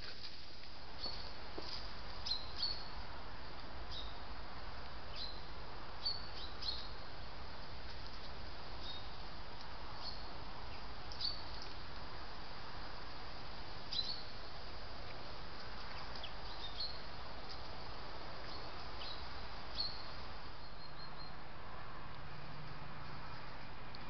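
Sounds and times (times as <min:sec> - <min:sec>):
songbirds chirping: 0:00.0 - 0:24.0
steady background hiss: 0:00.0 - 0:24.0.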